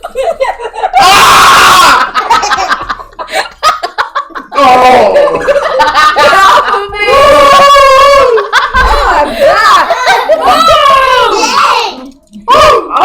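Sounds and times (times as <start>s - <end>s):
people laughing and snickering: 0.0s - 11.9s
loud vocal outburst: 1.0s - 2.1s, 7.1s - 9.8s, 10.4s - 13.0s.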